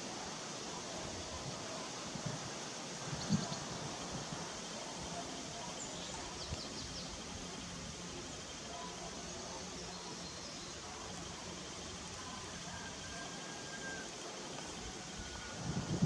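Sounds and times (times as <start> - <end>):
steady background hiss: 0.0 - 16.0
faint high chirps: 3.1 - 16.0.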